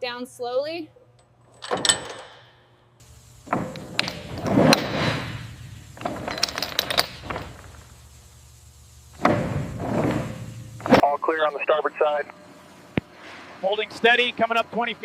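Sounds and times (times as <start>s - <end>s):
low machinery hum: 3.0s - 15.0s
metallic clanking and scraping: 3.4s - 8.0s.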